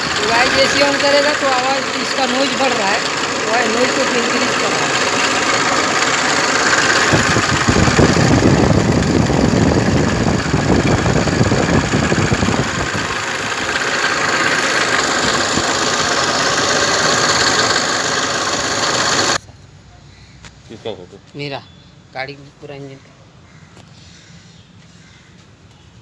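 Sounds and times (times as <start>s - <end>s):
air conditioning compressor noise: 0.0s - 19.4s
diesel engine idling: 0.0s - 19.4s.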